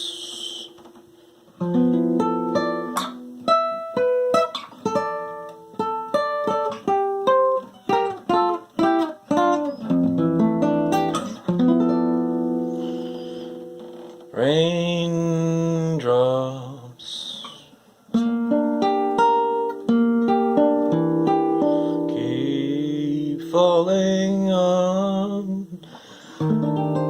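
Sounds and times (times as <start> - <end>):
acoustic guitar: 0.0 - 27.0.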